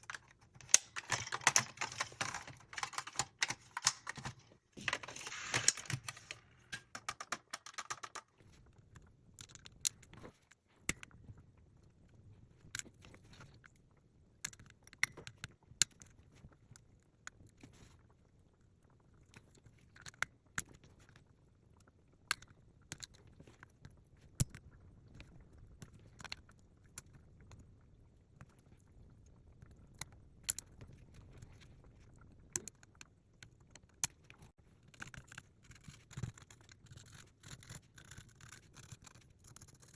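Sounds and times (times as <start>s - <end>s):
small parts clicking and tapping: 0.0s - 11.1s, 14.4s - 16.2s, 32.4s - 39.9s.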